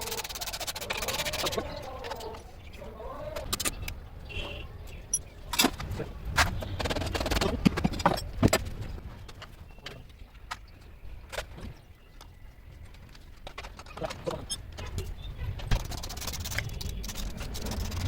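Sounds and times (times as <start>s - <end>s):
metal parts clicking and knocking: 5.1s - 8.7s, 12.8s - 18.0s.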